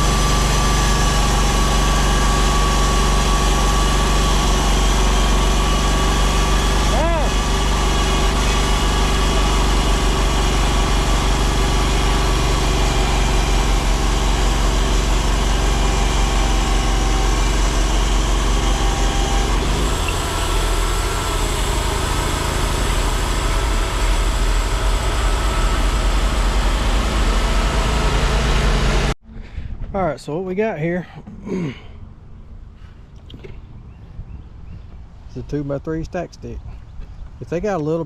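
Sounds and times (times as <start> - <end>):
sawmill sawing a board: 0.0 - 29.2.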